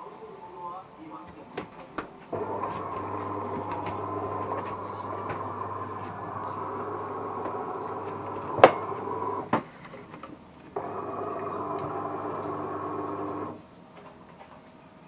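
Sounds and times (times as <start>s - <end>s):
espresso machine humming: 2.3s - 9.6s, 10.8s - 13.6s.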